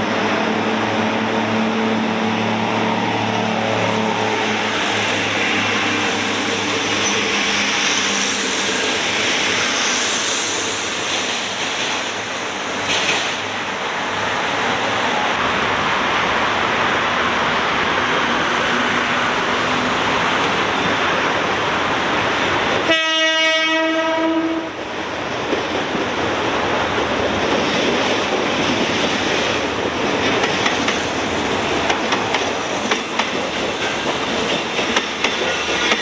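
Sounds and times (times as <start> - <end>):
train rumbling past: 0.0 - 36.0
train horn: 22.8 - 24.8
wheels clacking over rail joints: 24.8 - 36.0.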